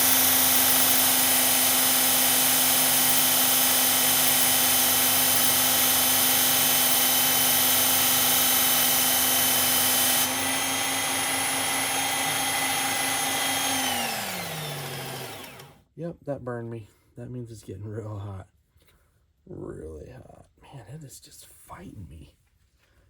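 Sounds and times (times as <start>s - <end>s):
belt sharpener motor running: 0.0s - 15.8s
blade grinding on belt: 0.0s - 15.8s.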